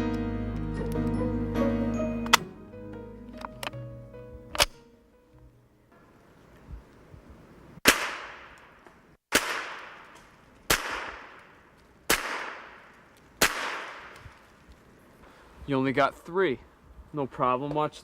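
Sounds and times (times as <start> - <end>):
gunshots with echo: 7.8 - 8.6, 10.7 - 11.5, 12.1 - 14.2.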